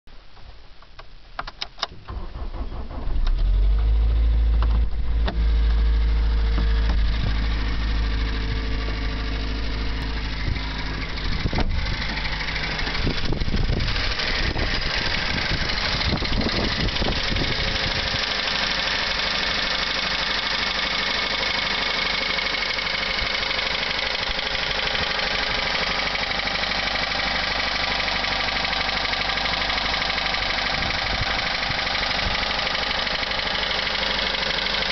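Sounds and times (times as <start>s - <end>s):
car engine starting: 1.7s - 34.9s
engine idling: 2.0s - 34.9s
metallic engine ticking: 6.5s - 26.4s.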